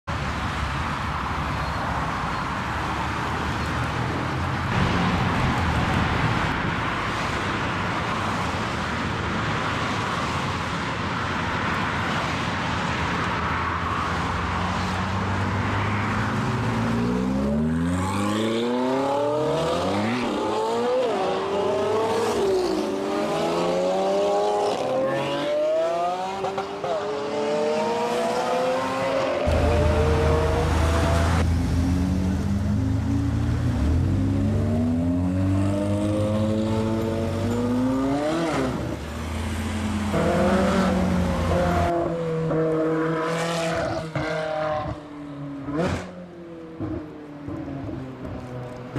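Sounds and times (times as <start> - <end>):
road noise: 0.0 - 48.9
car engine revving: 23.4 - 38.9.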